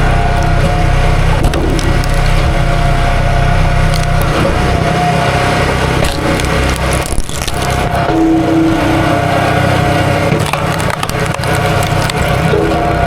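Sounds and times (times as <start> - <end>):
wood cracking and splintering: 0.0 - 13.0.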